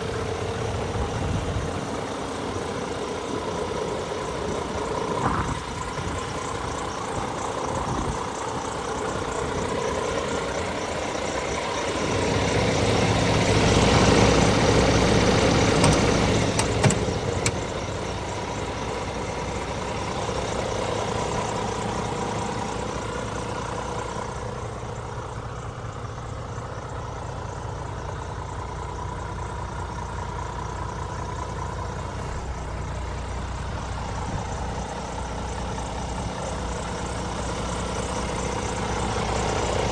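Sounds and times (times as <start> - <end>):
truck engine idling: 0.0 - 39.9
sharp clicks: 15.8 - 17.7.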